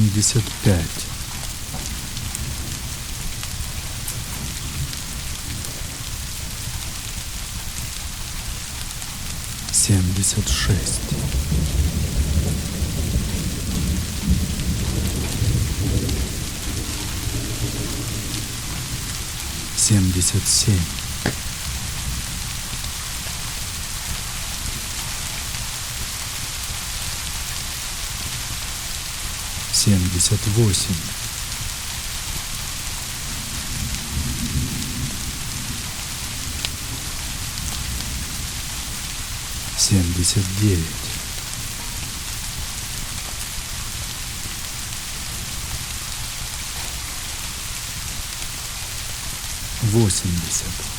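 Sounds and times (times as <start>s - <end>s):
steady rain: 0.0s - 50.9s
rumble of thunder: 11.0s - 19.7s, 33.2s - 39.0s.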